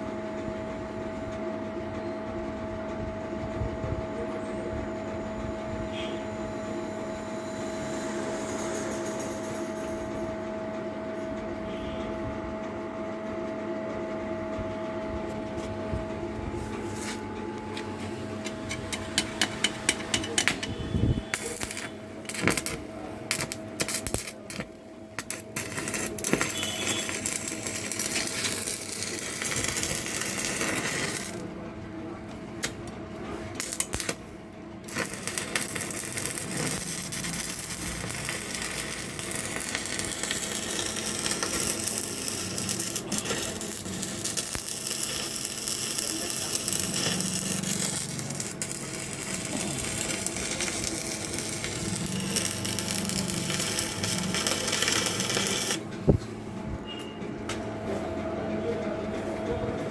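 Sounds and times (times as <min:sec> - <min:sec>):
welding arc crackling: 0:18.4 - 0:31.5, 0:32.6 - 0:32.9, 0:33.6 - 0:55.8.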